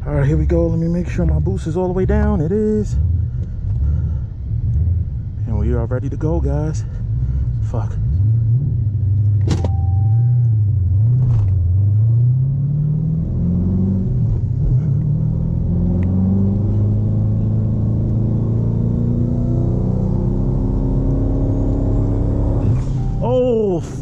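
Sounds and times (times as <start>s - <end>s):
car engine revving: 0.1s - 24.0s
car accelerating away: 10.0s - 23.7s.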